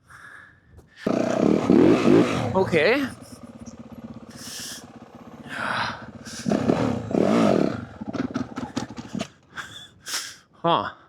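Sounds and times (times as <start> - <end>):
dirt bike engine revving: 1.1 - 9.4
clattering: 6.6 - 9.5.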